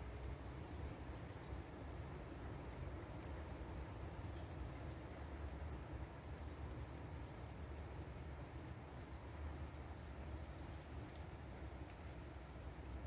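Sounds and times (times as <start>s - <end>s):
small birds chirping: 2.3s - 7.7s.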